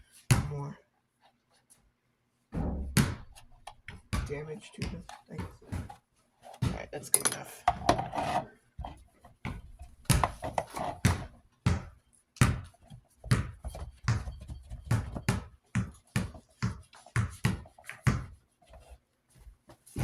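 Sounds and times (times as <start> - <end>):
hard objects knocking and clattering: 6.6 - 11.3.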